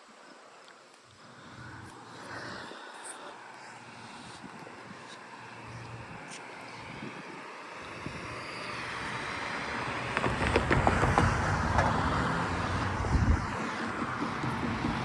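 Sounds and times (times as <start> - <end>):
vehicle driving by: 7.8 - 15.0.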